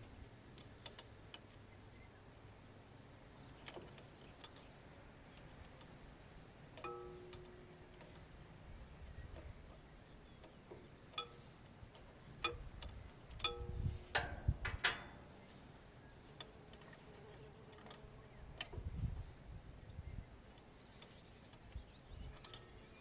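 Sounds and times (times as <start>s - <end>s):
ringing metal strikes: 6.8s - 7.6s, 13.4s - 15.4s
metallic clicks and taps: 6.8s - 8.2s, 10.4s - 15.3s.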